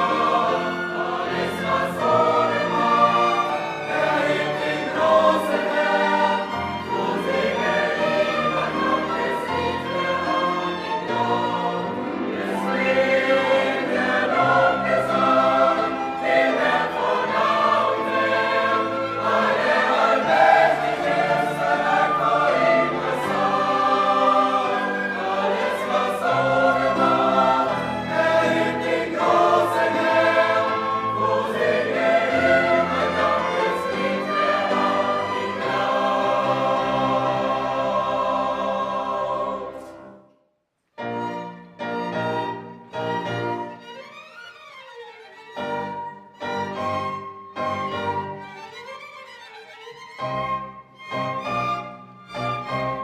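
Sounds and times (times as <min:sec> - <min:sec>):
choir singing: 0:00.0 - 0:40.4.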